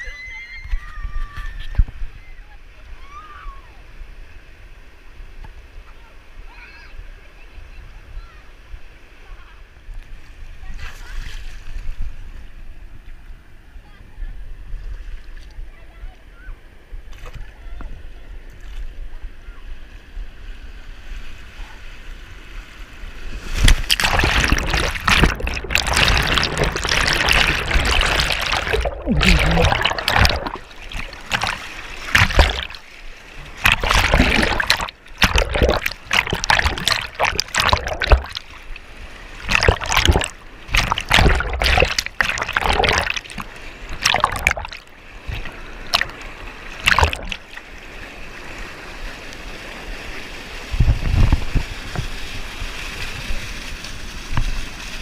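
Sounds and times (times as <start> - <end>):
water splashing around canoe: 22.8 - 55.0.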